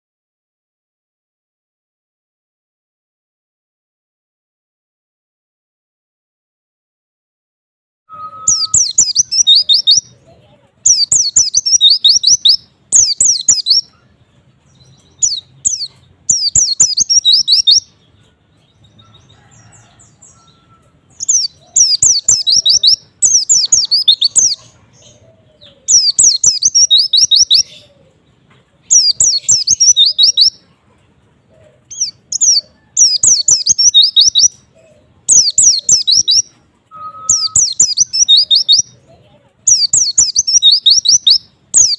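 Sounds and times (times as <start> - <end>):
bird twittering: 8.1 - 10.2, 10.9 - 14.1, 14.7 - 28.0, 28.9 - 30.6, 31.9 - 39.0, 39.7 - 41.9.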